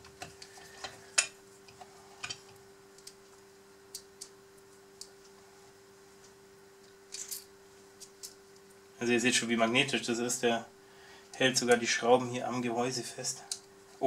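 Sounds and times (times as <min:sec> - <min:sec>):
faint steady hum: 0:00.0 - 0:14.0
small parts clicking and tapping: 0:07.1 - 0:08.4.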